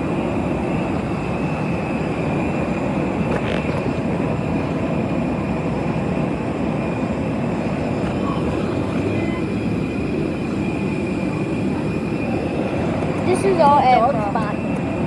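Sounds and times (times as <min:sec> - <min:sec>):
jet aircraft roar and whine: 0:00.0 - 0:15.0.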